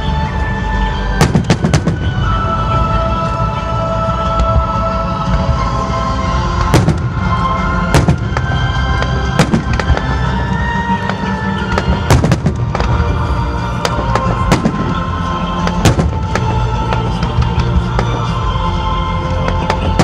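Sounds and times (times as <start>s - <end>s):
music playing: 0.0s - 20.0s
fireworks bangs: 1.2s - 2.4s, 6.6s - 18.4s, 19.4s - 20.0s.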